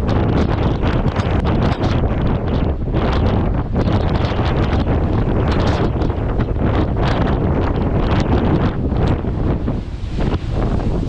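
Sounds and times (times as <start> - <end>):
gale-force wind on microphone: 0.0 - 11.0.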